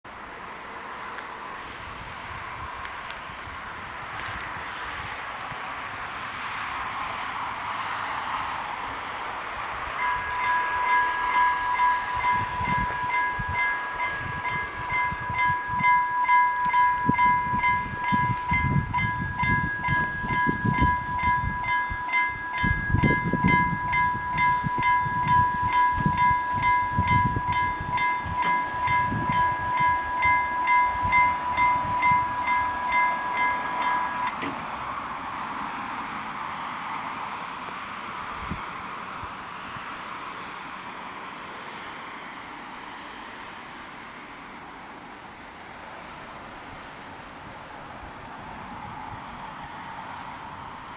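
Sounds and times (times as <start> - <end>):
level crossing warning bells: 9.8 - 35.2.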